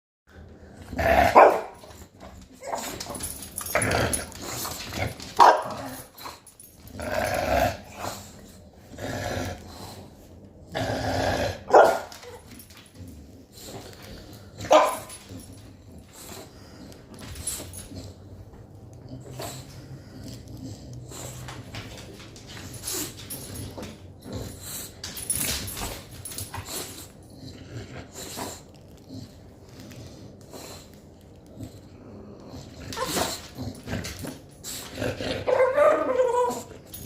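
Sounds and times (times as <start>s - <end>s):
puppy growling: 0.3s - 37.0s
puppy barking: 1.4s - 1.8s, 5.4s - 5.8s, 11.7s - 12.1s, 14.7s - 15.1s.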